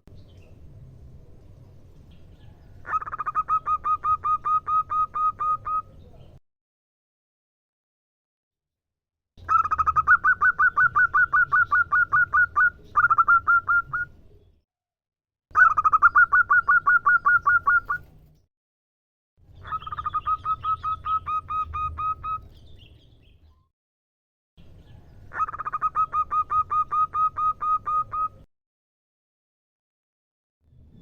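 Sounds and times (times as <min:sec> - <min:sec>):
dove calling rapid notes: 0:02.8 - 0:05.9, 0:09.4 - 0:14.2, 0:15.5 - 0:18.1, 0:19.6 - 0:22.5, 0:25.3 - 0:28.5.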